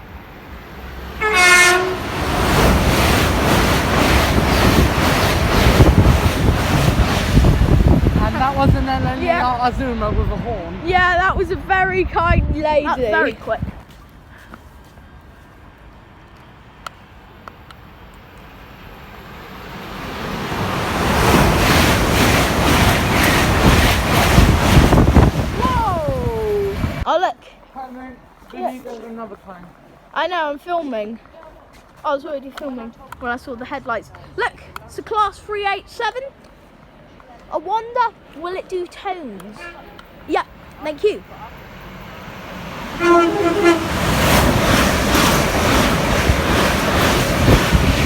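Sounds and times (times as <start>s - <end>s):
high-speed train passing: 0.0s - 27.1s, 33.0s - 48.0s
train horn: 1.2s - 2.3s, 42.9s - 44.5s
wind buffeting microphone: 1.3s - 14.0s, 20.2s - 27.1s, 42.1s - 48.0s.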